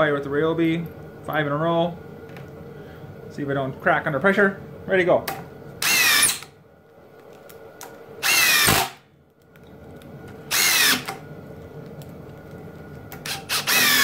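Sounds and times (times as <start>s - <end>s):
impact driver driving screws: 5.8s - 6.5s, 8.2s - 9.0s, 10.5s - 11.1s, 13.2s - 14.0s.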